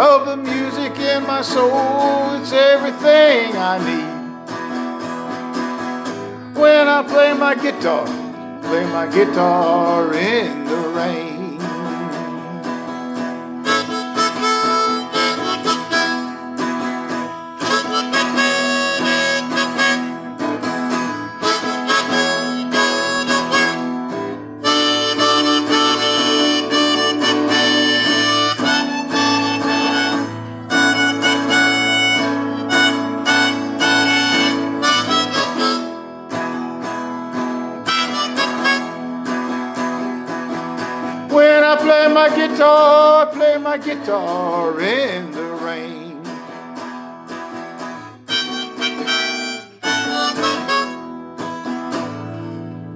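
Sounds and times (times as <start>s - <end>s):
blues harmonica solo: 0.0s - 45.1s, 46.2s - 52.9s
guitar accompaniment: 0.0s - 52.9s.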